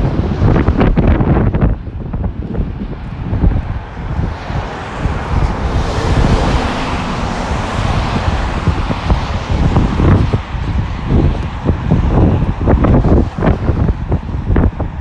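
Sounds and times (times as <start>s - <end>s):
wind buffeting microphone: 0.0s - 15.0s
vehicle tyres hissing on wet road: 4.4s - 13.9s.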